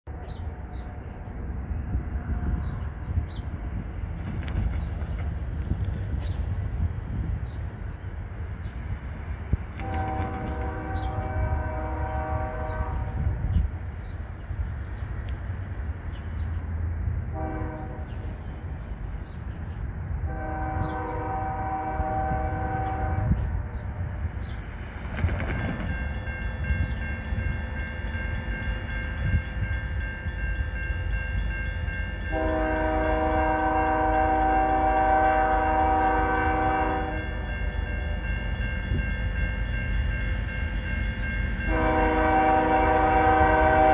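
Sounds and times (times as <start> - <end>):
train rumble: 0.0 - 43.9
locomotive air horn blasts: 9.8 - 13.3, 17.3 - 18.3, 20.2 - 23.5, 32.3 - 37.4, 41.7 - 43.9
birds chirping: 9.9 - 21.3, 22.8 - 31.5.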